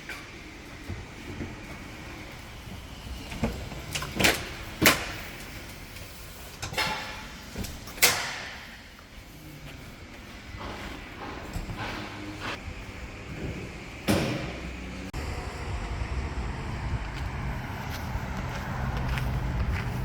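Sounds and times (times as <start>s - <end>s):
sharp knocks and clanks on metal: 14.0s - 14.8s.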